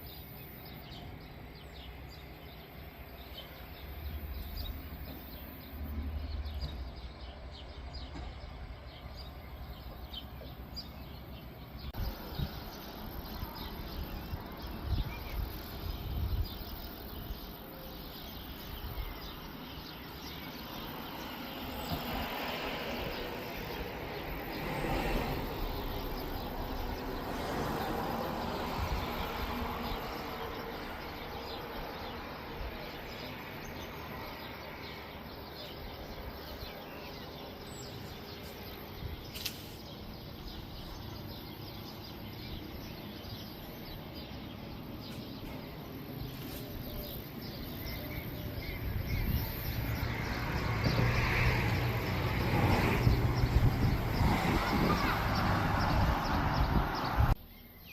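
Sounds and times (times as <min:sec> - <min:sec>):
birds chirping: 0:00.0 - 0:57.9
low rumble of passing vehicle: 0:18.6 - 0:57.4.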